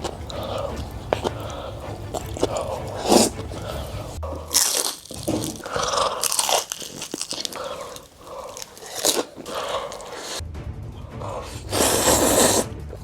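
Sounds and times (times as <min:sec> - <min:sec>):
chewing crunchy food: 0:00.0 - 0:10.4.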